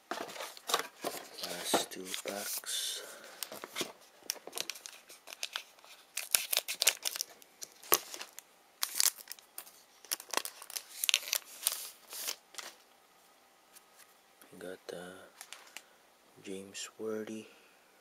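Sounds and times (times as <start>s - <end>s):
card pack wrapper tearing and crinkling: 3.4s - 12.8s.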